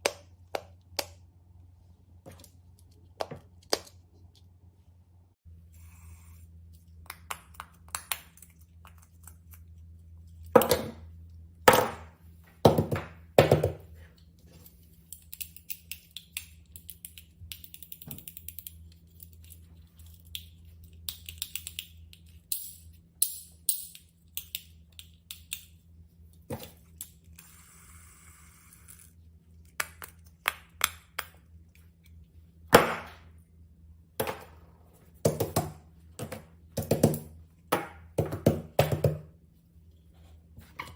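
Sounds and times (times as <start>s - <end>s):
steady low hum: 0.0s - 40.9s
small objects clicking and tapping: 6.7s - 11.0s, 15.0s - 25.8s, 28.8s - 32.3s.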